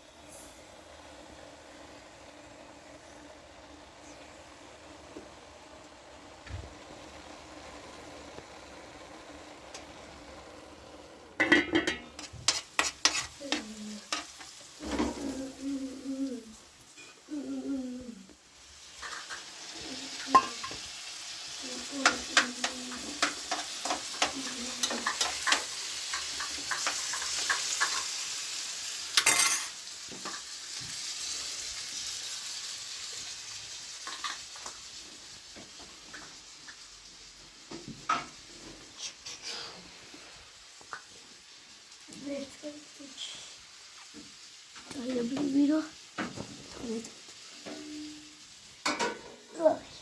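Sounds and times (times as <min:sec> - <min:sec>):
food sizzling in a pan: 0:00.0 - 0:50.0
utensil scraping a pan: 0:11.4 - 0:15.4, 0:39.0 - 0:39.9.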